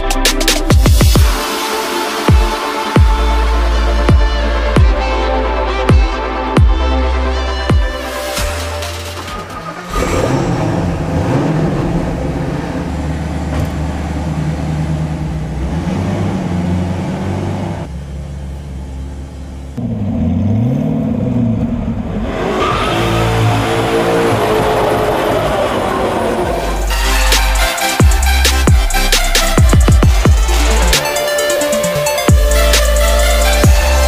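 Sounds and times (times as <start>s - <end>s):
sports car engine revving: 9.0s - 34.0s.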